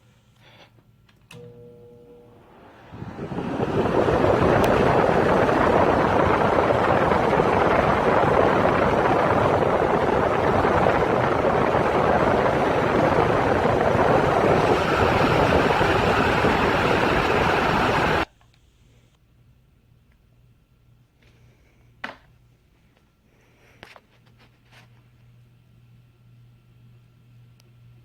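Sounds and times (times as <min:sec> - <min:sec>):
electric fan running: 0:01.3 - 0:18.3
air buffeting microphone: 0:02.4 - 0:18.3.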